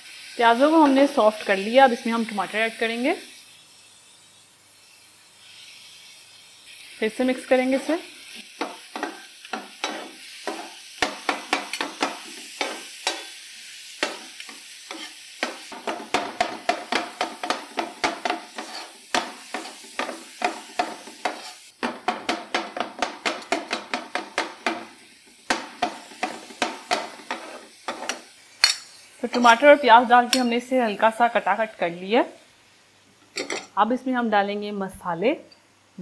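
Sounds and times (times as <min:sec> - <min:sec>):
onions and tomatoes sizzling in oil: 0:00.0 - 0:36.0
spatula clacking against pan: 0:08.6 - 0:13.3, 0:14.0 - 0:29.5.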